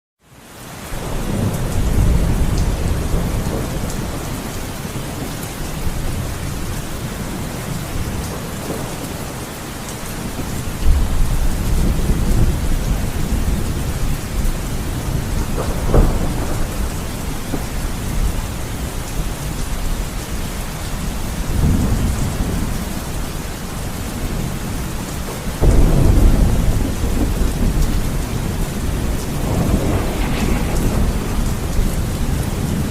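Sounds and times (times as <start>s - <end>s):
heavy rain falling: 0.2s - 32.9s
deep low rumbles: 29.3s - 32.9s.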